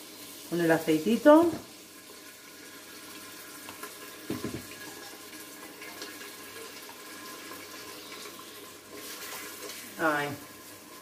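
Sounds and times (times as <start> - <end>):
sofrito sizzling in hot oil: 0.0 - 11.0
spoon knocking on pot: 4.3 - 4.7.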